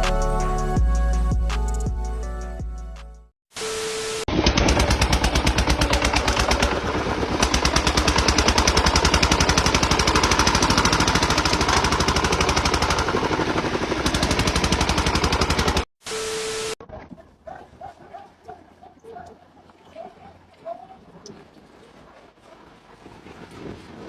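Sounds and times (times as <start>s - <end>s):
short steady beep: 16.1s - 16.8s.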